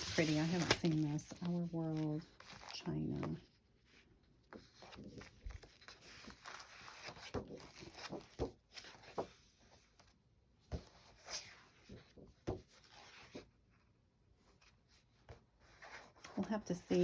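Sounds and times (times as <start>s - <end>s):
paper rustling: 0.0s - 3.4s, 4.5s - 10.1s.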